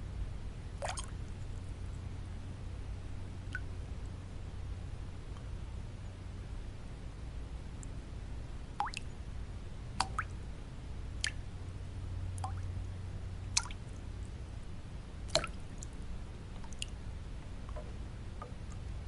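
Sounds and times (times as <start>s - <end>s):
low white noise: 0.0s - 19.0s
water drops plipping into water: 0.8s - 1.1s, 8.8s - 9.1s, 10.0s - 10.4s, 11.2s - 11.4s, 12.4s - 12.7s, 13.5s - 14.0s, 15.3s - 16.0s, 16.6s - 17.0s.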